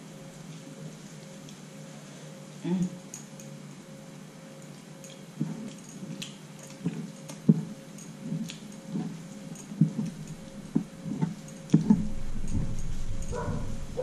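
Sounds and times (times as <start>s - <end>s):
chewing with wet smacks: 4.6s - 13.5s
fingers mixing rice on plate: 5.0s - 13.9s
steady low rumble: 9.8s - 14.0s.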